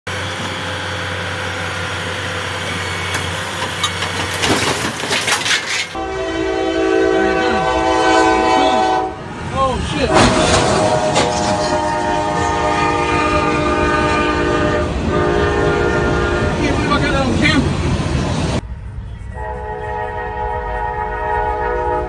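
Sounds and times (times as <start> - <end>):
train horn: 6.0 - 9.2, 10.1 - 17.2, 19.2 - 22.0.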